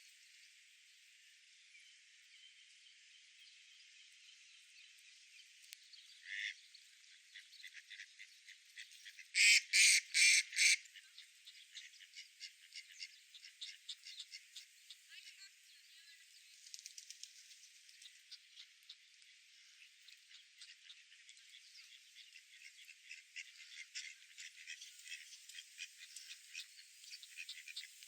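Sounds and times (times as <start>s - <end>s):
duck quacking: 9.4s - 10.8s.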